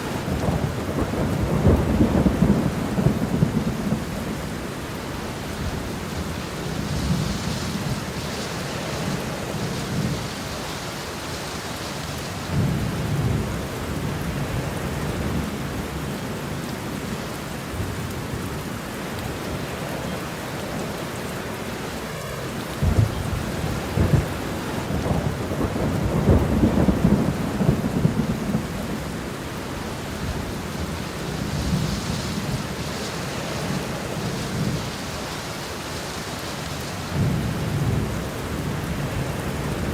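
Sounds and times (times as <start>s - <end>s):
rolling thunder: 0.0s - 10.7s, 22.0s - 35.5s, 36.8s - 39.9s
heavy rain: 0.0s - 39.9s.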